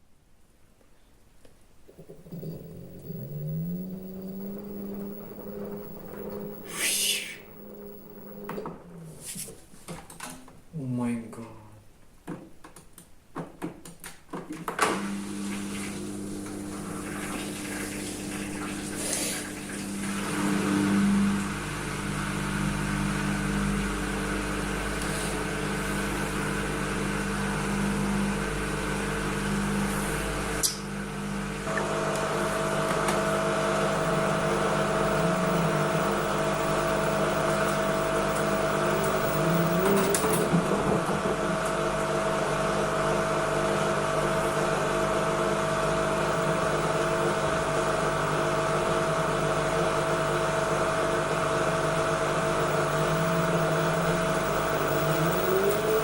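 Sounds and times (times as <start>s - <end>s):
high whine: 1.9s - 8.9s, 21.0s - 43.3s
washing machine hum: 1.9s - 10.8s, 13.7s - 56.0s
short rising and falling tones: 2.3s - 8.4s.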